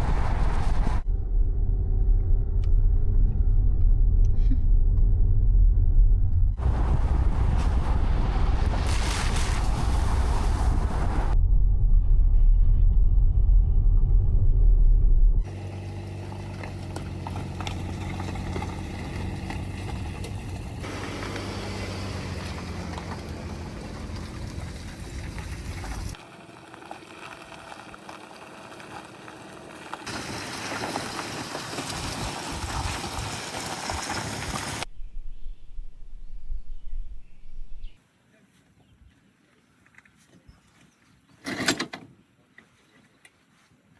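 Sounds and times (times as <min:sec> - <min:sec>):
wind rumble on microphone: 0:00.0 - 0:15.5, 0:32.0 - 0:38.0.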